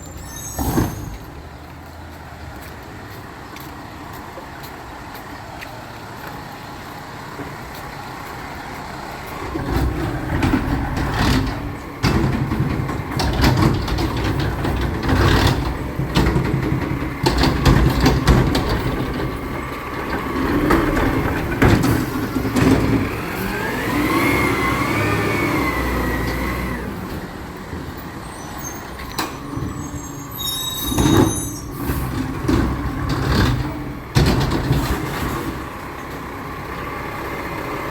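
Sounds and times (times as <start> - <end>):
truck engine: 0.0 - 37.9
clanks and knocks: 9.4 - 23.2, 30.9 - 36.3.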